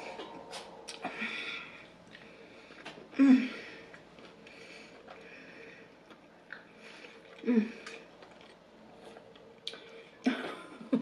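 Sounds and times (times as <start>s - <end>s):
person chewing meat: 6.0s - 10.0s.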